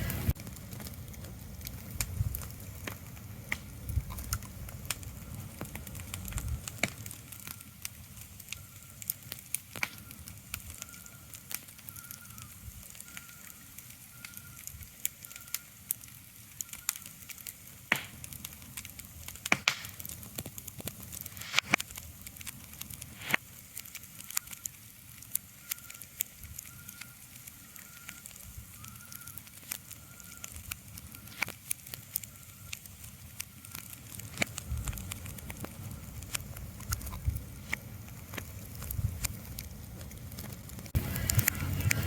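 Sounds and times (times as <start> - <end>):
sharp crackles and pops: 0.0 - 42.0
low rumble: 34.6 - 42.0.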